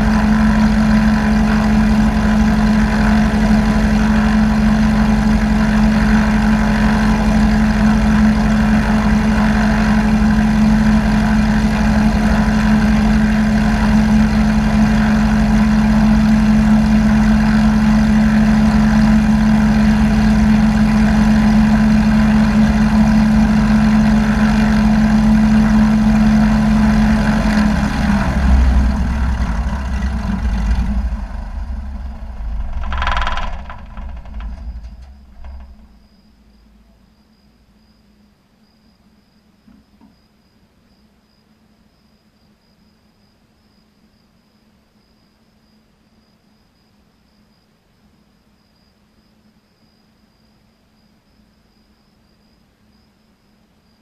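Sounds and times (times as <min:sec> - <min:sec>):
aircraft engine idling: 0:00.0 - 0:36.9.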